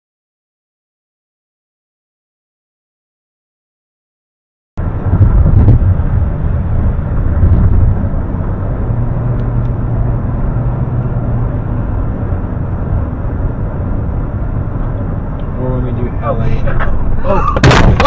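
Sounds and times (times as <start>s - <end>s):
car road and engine rumble: 4.8s - 18.0s.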